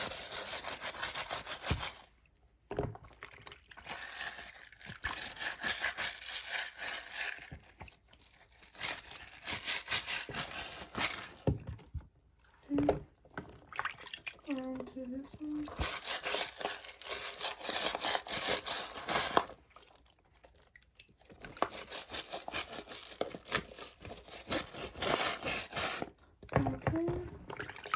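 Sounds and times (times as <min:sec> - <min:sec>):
scratchy rubbing: 0:00.0 - 0:02.1, 0:08.7 - 0:11.4, 0:15.5 - 0:19.5, 0:21.6 - 0:26.1.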